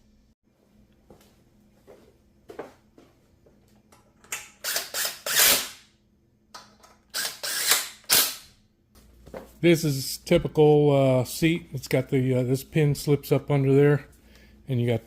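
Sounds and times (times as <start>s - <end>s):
ratchet wrench rasping: 4.6s - 5.7s, 7.1s - 8.1s.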